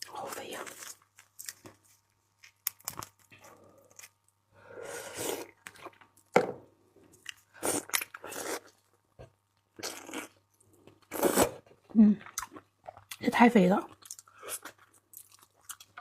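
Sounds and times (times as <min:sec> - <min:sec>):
biting and chewing seafood: 0:00.7 - 0:04.4, 0:13.9 - 0:16.0.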